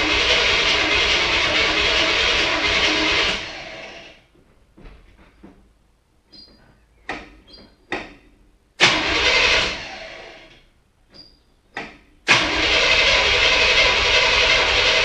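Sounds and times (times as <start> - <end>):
car engine running loudly: 0.0 - 4.2, 8.8 - 10.5, 12.3 - 15.0
car starter cranking: 0.0 - 4.2, 8.8 - 15.0.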